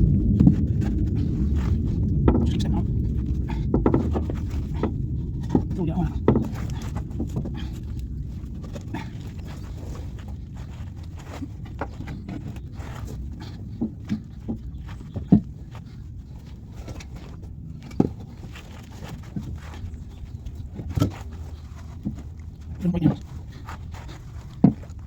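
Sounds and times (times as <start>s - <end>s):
knocks and clunks: 0.0s - 25.0s
steady low rumble: 0.0s - 25.0s.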